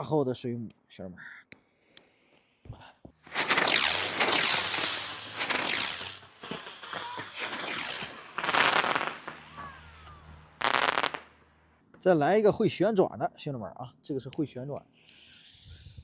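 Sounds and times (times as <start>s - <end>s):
firework hissing and crackling: 3.2s - 11.5s, 15.0s - 16.0s.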